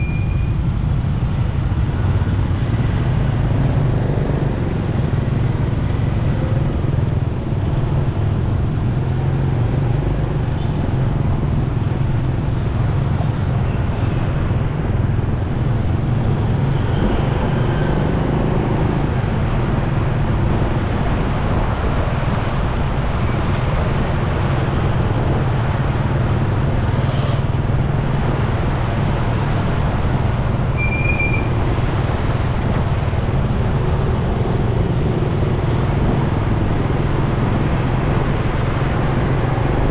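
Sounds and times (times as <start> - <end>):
high beep: 0.0 - 0.6
motorcycle engine and road noise: 0.0 - 39.9
passing vehicles: 0.0 - 39.9.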